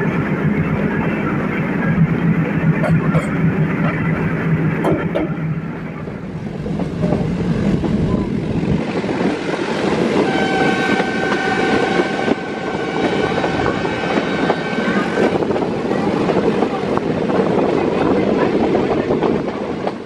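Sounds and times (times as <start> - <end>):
train running on rails: 0.0 - 20.0
locomotive horn blast: 10.2 - 15.1.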